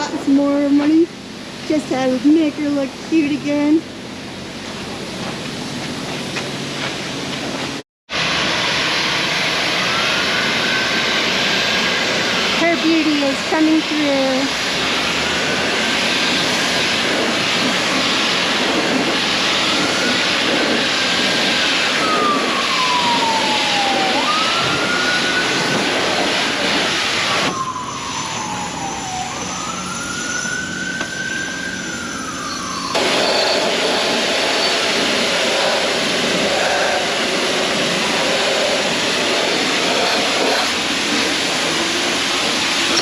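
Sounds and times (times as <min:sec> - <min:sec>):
pressure washer spraying water: 0:08.2 - 0:27.7, 0:32.9 - 0:43.0
wailing tone rising and falling: 0:08.5 - 0:12.0, 0:21.6 - 0:26.0, 0:27.2 - 0:33.8.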